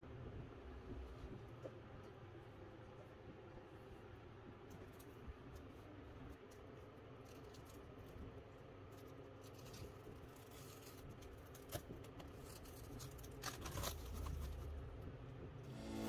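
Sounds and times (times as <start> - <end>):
handling scrapes and rustles: 4.8 - 14.8.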